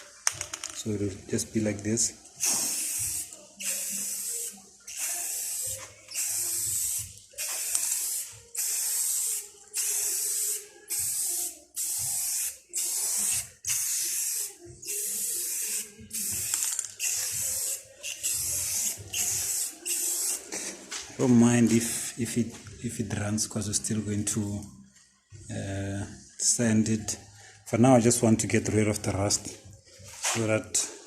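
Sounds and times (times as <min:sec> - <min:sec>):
spray paint can hissing: 0:02.4 - 0:20.7, 0:21.6 - 0:22.2.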